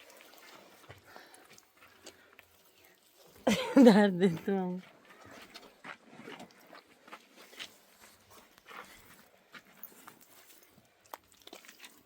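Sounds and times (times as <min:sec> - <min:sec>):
footsteps on rocky ground: 0:03.5 - 0:11.3.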